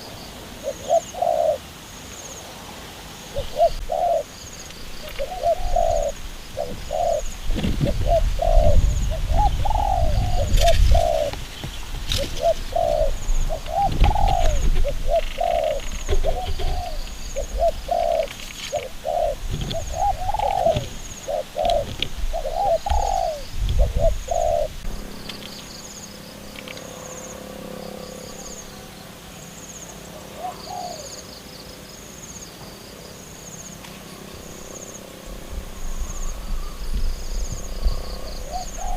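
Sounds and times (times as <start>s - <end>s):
dove cooing: 0.0s - 2.6s, 3.2s - 26.8s, 30.0s - 31.3s, 34.3s - 38.9s
low rumbling: 4.8s - 29.0s.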